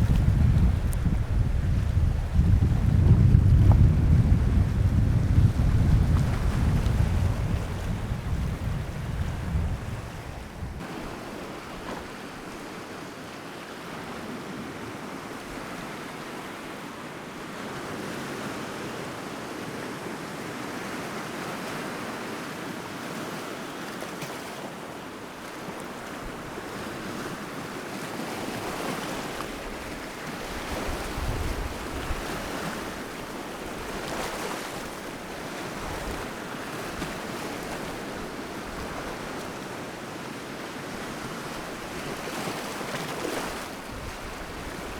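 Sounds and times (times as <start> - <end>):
wind buffeting microphone: 0.0 - 11.0, 29.5 - 34.9, 43.4 - 44.9
waves breaking on shore: 0.0 - 44.9.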